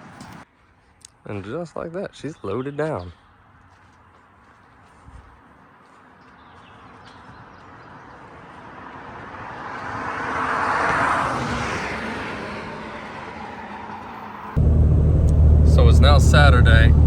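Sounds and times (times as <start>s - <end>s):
vehicle passing by: 8.3s - 17.0s.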